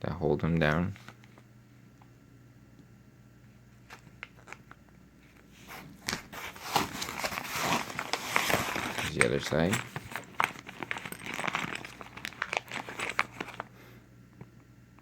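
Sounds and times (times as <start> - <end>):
plastic packaging crinkling: 3.9 - 4.8, 6.0 - 13.8.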